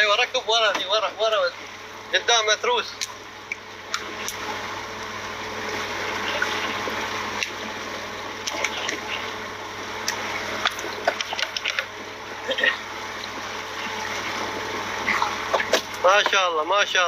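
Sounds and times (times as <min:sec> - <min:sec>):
water rushing and gushing: 0:03.5 - 0:16.5.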